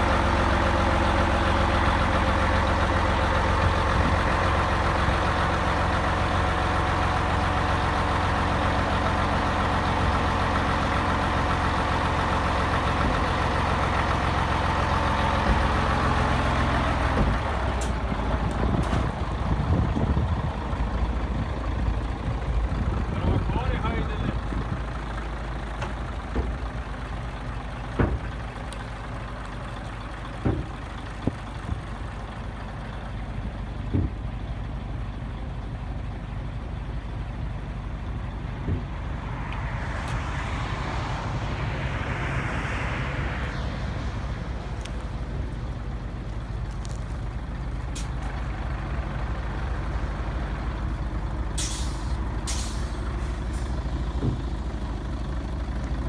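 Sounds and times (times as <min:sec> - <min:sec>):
truck diesel engine running: 0:00.0 - 0:56.0
hissing noise: 0:38.8 - 0:46.4.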